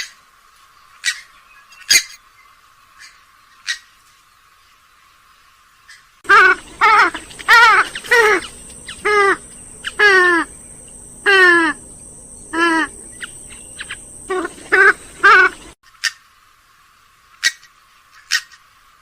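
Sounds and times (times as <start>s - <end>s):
swamphen calling: 6.2s - 15.8s.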